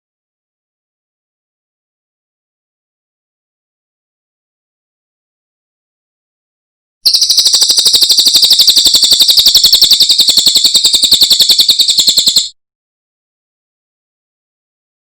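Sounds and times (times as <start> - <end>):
songbird trilling: 7.1 - 12.5.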